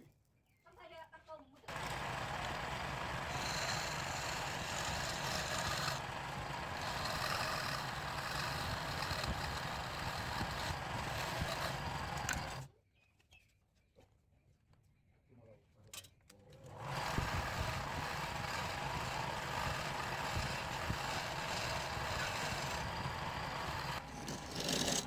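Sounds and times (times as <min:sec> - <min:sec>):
machine whirring: 0:01.7 - 0:12.7, 0:16.7 - 0:25.0.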